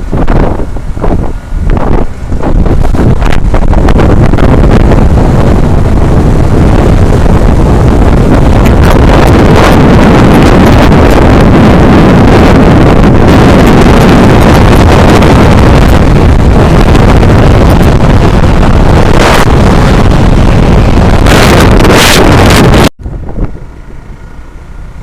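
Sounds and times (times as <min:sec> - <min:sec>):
road and engine rumble: 0:00.0 - 0:25.0
wind buffeting microphone: 0:00.0 - 0:25.0.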